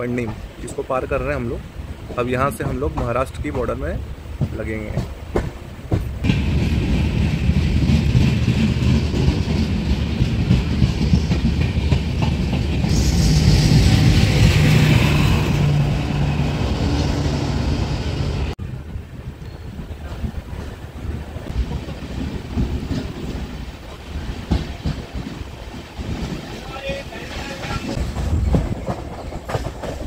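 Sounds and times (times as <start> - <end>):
steady rushing noise: 0.0 - 30.0
train wheels rattling: 1.9 - 18.5, 19.6 - 30.0
hissing rush: 3.9 - 18.6.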